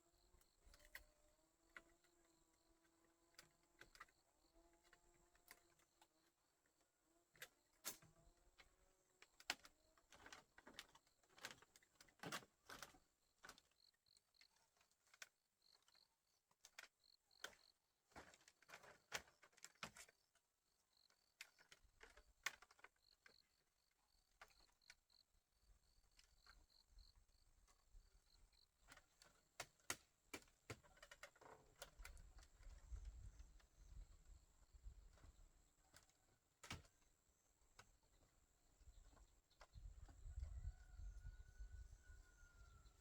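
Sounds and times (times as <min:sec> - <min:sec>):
insects chirping: 0:23.0 - 0:29.0.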